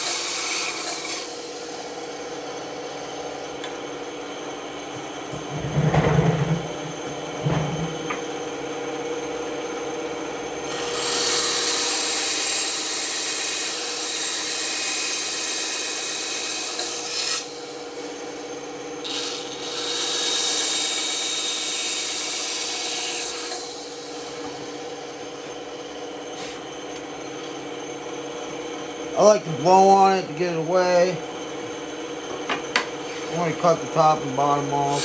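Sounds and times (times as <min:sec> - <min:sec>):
saw blade cutting wood: 0:00.0 - 0:02.3, 0:10.7 - 0:17.7, 0:19.0 - 0:26.7, 0:29.2 - 0:31.3, 0:32.3 - 0:35.0
band saw humming: 0:00.0 - 0:35.0.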